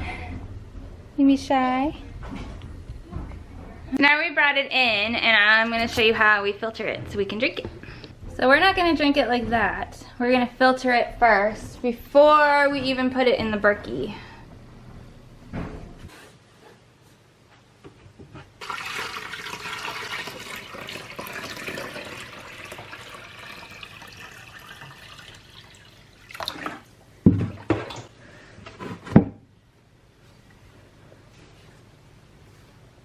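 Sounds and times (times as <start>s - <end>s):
water pouring into a container: 18.6s - 26.9s.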